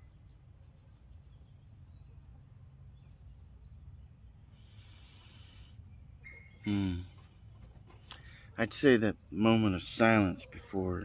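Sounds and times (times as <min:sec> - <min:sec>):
faint bird chirps: 0:00.0 - 0:08.6.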